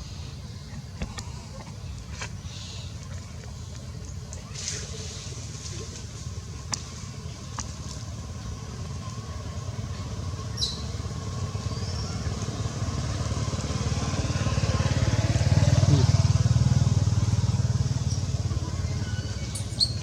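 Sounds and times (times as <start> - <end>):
engine running with low pulse: 0.0 - 20.0.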